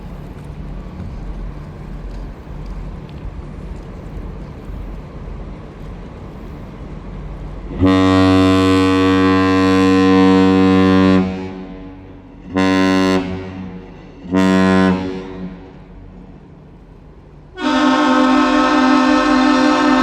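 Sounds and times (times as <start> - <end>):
deep ship's horn blasts: 7.7 - 16.6, 17.5 - 20.0
higher two-tone horn: 7.8 - 15.9, 17.6 - 20.0.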